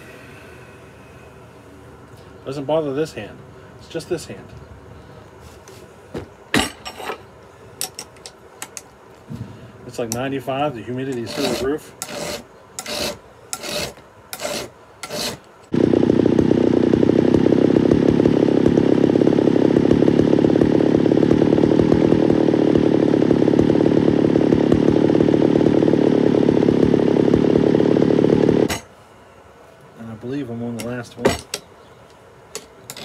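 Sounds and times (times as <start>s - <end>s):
steady mechanical drone: 0.0s - 33.0s
file rasping on chain: 11.1s - 15.4s.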